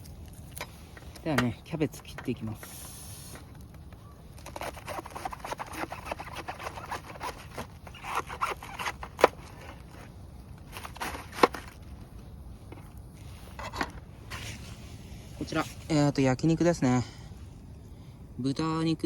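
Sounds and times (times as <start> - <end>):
knife cutting through cabbage: 4.4 - 10.1, 10.7 - 11.8.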